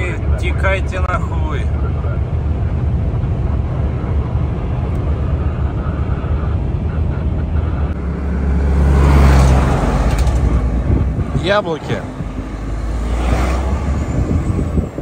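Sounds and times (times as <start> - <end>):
truck diesel engine drone: 0.0 - 15.0.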